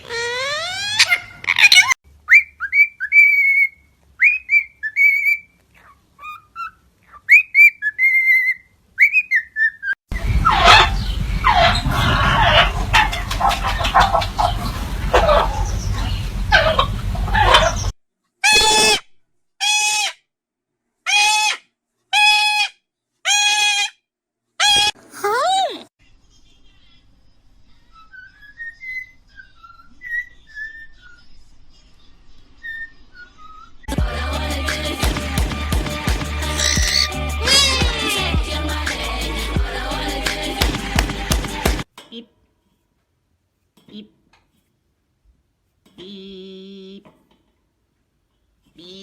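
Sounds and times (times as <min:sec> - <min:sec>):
parrots calling: 0:00.0 - 0:03.7, 0:10.1 - 0:19.0, 0:34.8 - 0:41.8.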